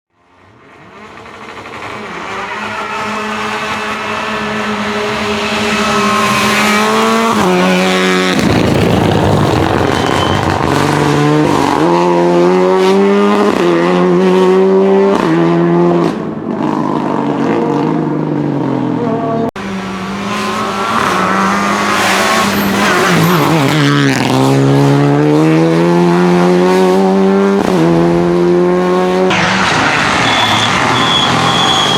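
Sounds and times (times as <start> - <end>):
rally car engine at full throttle: 0.1 - 31.9
car rushing past: 19.6 - 31.9.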